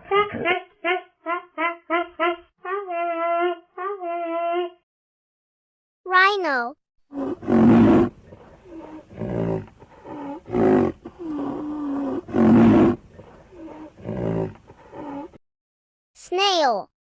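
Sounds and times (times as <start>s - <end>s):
rhinoceros calling: 7.1s - 15.4s.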